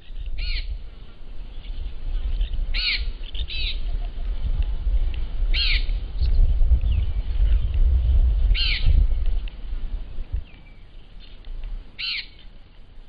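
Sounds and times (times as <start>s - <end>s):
low rumble: 0.0s - 11.9s
bird call: 12.0s - 12.5s.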